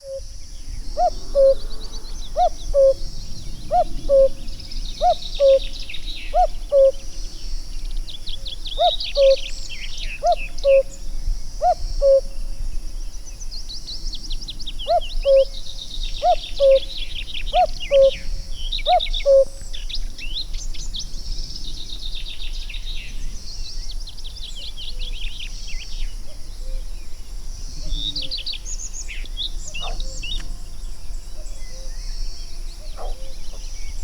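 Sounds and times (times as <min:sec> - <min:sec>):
cuckoo calling: 0:00.8 - 0:01.6, 0:02.2 - 0:03.1, 0:05.0 - 0:07.0
small birds twittering: 0:27.5 - 0:34.0.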